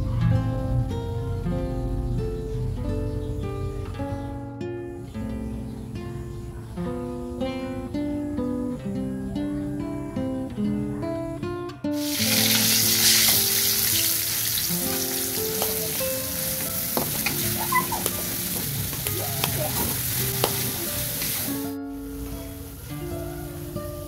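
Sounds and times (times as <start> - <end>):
paste sizzling in hot oil: 12.0 - 21.7.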